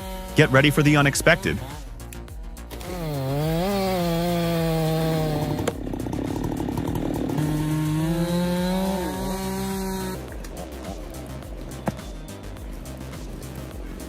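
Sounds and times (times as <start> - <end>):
chainsaw engine at high revs: 0.0 - 2.0, 2.7 - 14.0.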